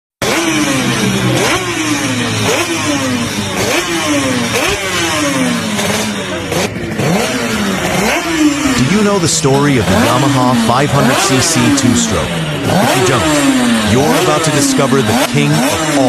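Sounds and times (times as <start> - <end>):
motorcycle engine revving: 0.2 - 16.0.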